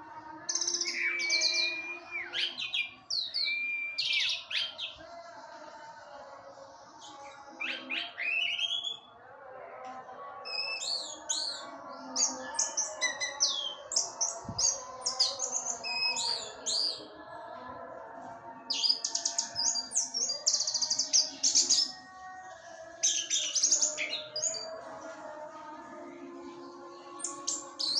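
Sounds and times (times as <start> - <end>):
thrush singing high whistles: 3.4 - 4.4.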